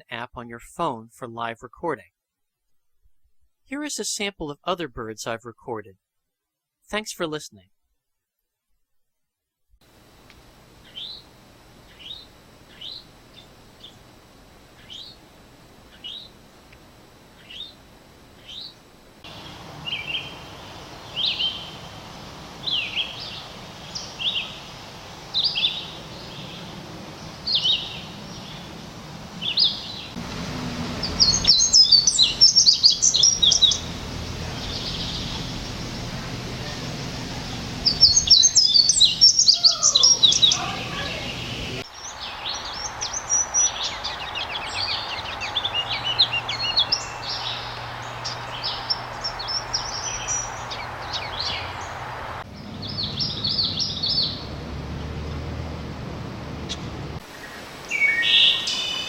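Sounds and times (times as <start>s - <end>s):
outdoor background noise: 9.8s - 59.0s
fast jumbled bird song: 10.8s - 14.1s, 14.7s - 16.4s, 17.3s - 30.2s, 30.8s - 36.0s, 36.6s - 54.6s, 56.7s - 59.0s
high downslurred bird notes: 18.4s - 55.1s
slurred whistled bird notes: 31.0s - 33.9s, 37.8s - 51.9s.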